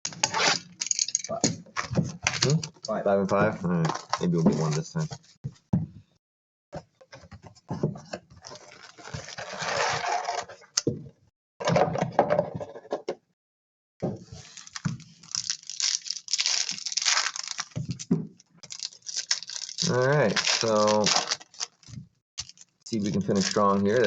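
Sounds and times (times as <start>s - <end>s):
wrapper tearing and crinkling: 8.6s - 10.2s, 14.4s - 24.0s.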